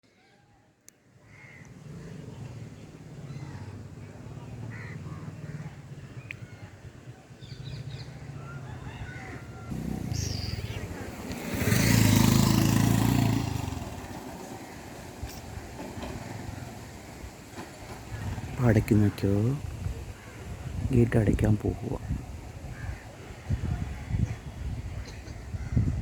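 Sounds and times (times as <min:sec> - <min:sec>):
vehicle passing with rush: 0:01.7 - 0:20.8
vehicle engine running: 0:09.7 - 0:19.0.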